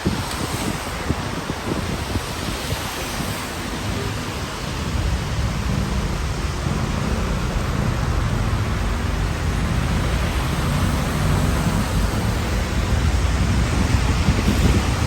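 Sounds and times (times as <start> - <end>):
rain hissing: 0.0 - 15.0
low rumble: 4.8 - 15.0.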